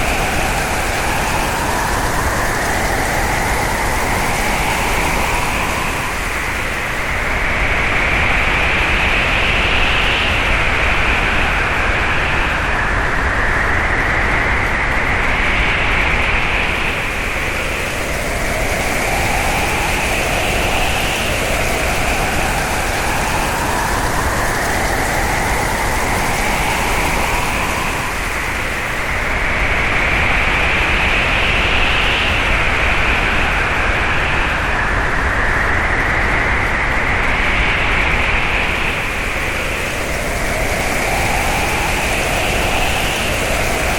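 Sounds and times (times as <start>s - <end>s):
howling wind: 0.0s - 43.9s.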